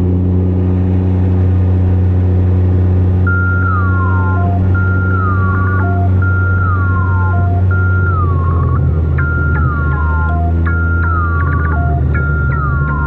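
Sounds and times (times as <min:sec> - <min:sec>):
motorcycle engine droning: 0:00.0 - 0:13.0
high electronic tone dropping in pitch: 0:03.3 - 0:13.0.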